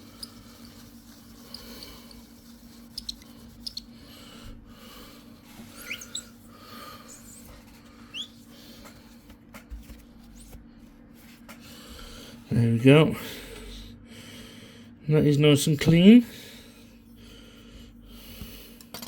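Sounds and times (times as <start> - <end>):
low steady hum: 0.0 - 19.0
tissue squeaking on hard plastic: 5.6 - 6.4, 7.0 - 8.5.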